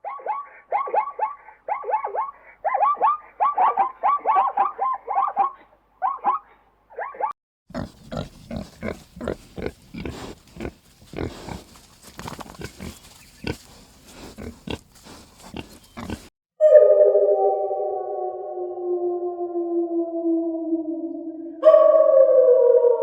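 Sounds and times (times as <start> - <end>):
pig grunting: 7.7 - 11.7, 12.6 - 16.3
sustained synthesizer tone: 16.6 - 23.0.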